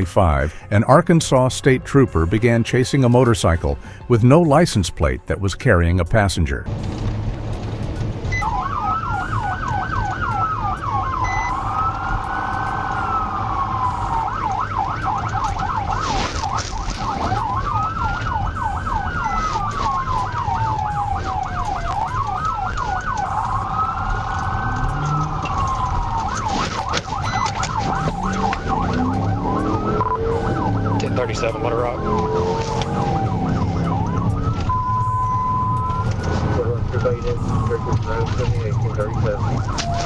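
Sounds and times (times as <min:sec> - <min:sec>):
police siren yelp and wail: 0:08.3 - 0:40.0.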